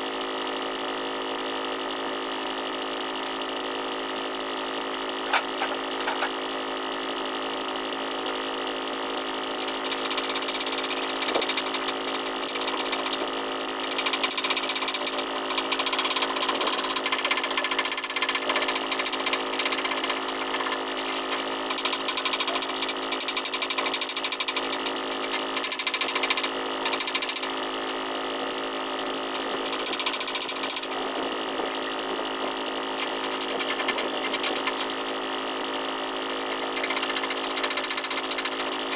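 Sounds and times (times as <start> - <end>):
metalworking tool rattling: 33.0 - 35.1.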